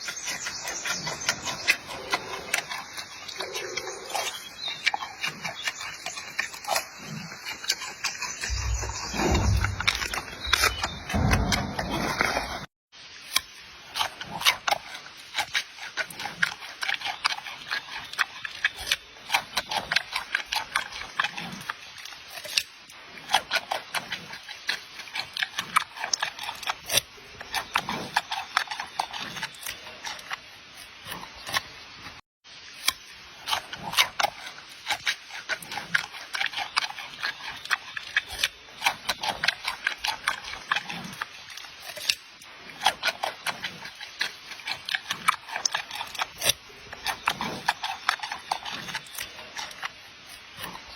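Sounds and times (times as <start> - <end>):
panda chewing food: 0.4 - 12.6, 33.4 - 50.9.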